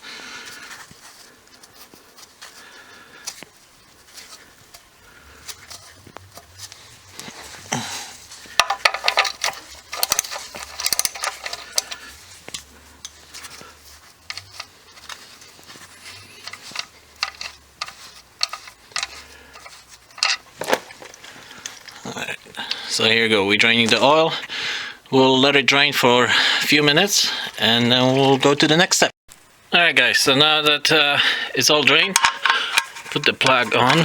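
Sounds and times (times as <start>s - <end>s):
metal clinks of wrench: 8.6s - 12.0s.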